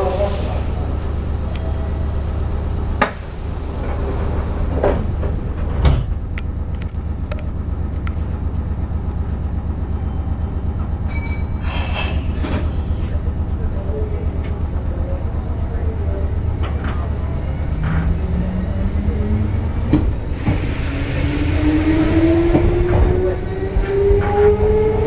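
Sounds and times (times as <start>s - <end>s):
train low rumble: 0.0s - 25.0s
high ringing tone: 11.1s - 11.8s.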